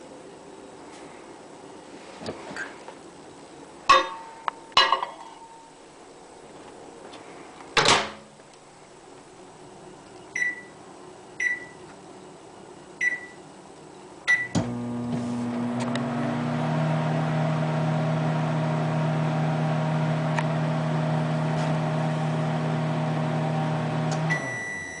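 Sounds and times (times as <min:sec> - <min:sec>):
microwave oven humming: 0:09.6 - 0:25.0
keypad beeps: 0:10.4 - 0:10.7, 0:11.4 - 0:11.8, 0:13.0 - 0:13.4.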